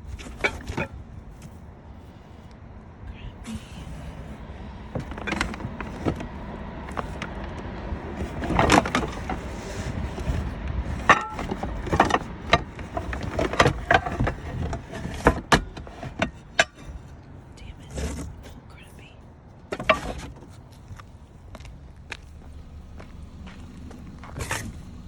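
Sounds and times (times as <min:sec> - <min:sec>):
van driving rumble: 0:00.0 - 0:25.0
loose items rattling: 0:04.9 - 0:17.1, 0:19.7 - 0:20.5.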